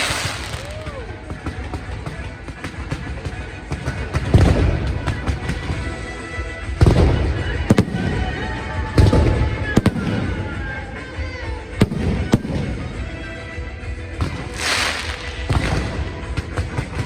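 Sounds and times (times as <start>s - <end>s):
hissing firework burst: 0.0s - 1.0s, 14.3s - 16.1s
firework shells exploding: 0.0s - 6.1s, 6.8s - 11.1s, 14.2s - 17.0s
whistling rockets: 0.0s - 11.1s, 14.2s - 17.0s.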